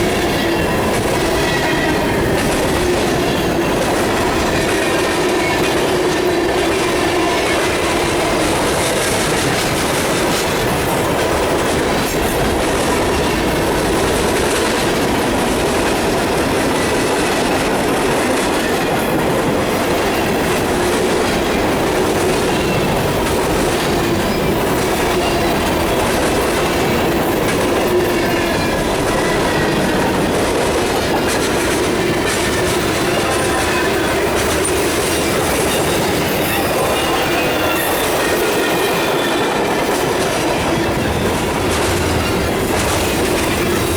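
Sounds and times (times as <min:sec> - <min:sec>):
freight train wheels rumbling: 0:00.0 - 0:43.9
wheels clacking over rail joints: 0:00.0 - 0:43.9.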